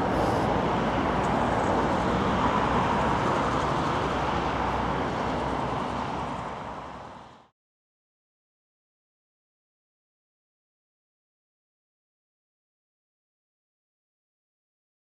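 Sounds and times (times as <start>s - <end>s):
jet engine noise: 0.0s - 7.5s.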